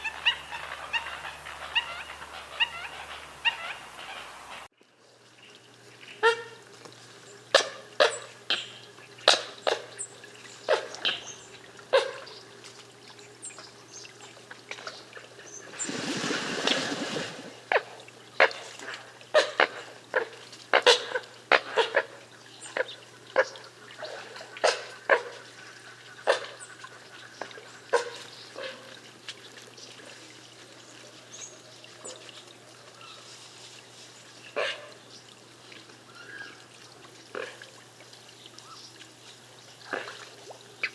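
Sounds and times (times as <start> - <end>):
coots calling: 0.0 - 4.7
water splashing: 14.5 - 21.3.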